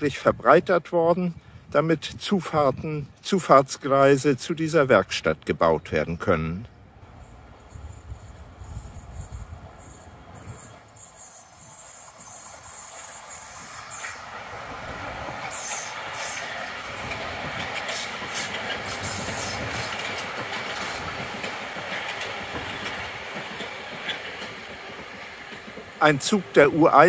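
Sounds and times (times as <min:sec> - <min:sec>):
electric train passing: 0:06.7 - 0:27.0
wheels clicking over rail joints: 0:10.0 - 0:27.0.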